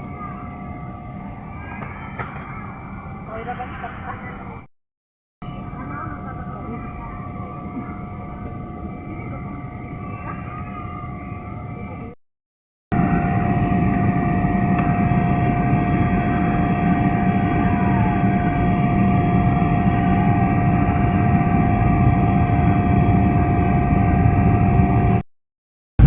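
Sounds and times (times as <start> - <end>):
jet engine whine: 5.5 - 12.2, 12.9 - 25.3
jet engine rumble in cabin: 12.9 - 25.2.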